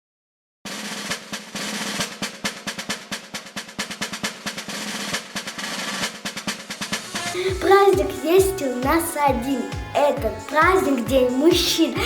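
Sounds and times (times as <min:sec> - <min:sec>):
snare drum roll: 0:00.7 - 0:07.4.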